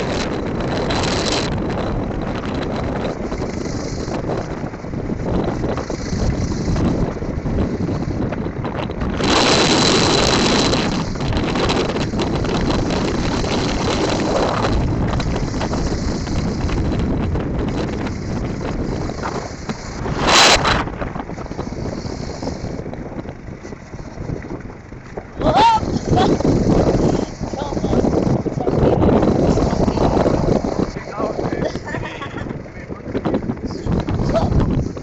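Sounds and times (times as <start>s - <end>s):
motorcycle engine running: 0.0s - 35.0s
wind buffeting microphone: 0.0s - 35.0s
street traffic: 21.0s - 35.0s.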